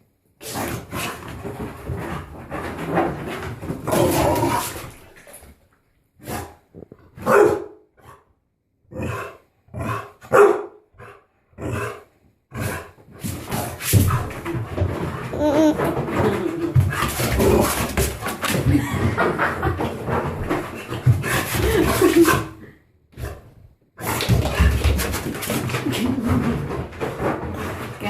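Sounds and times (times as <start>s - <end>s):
dog barking and growling: 6.2s - 8.3s, 8.9s - 13.8s.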